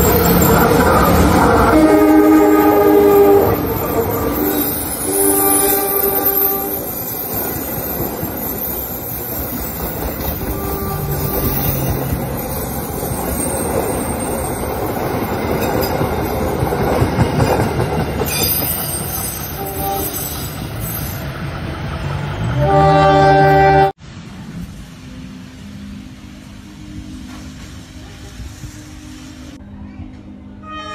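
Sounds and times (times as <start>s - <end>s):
train wheels rumbling on track: 0.0s - 30.6s
horn-like tone: 0.2s - 7.0s, 10.4s - 11.8s, 19.6s - 20.4s, 22.6s - 24.0s, 30.6s - 30.9s.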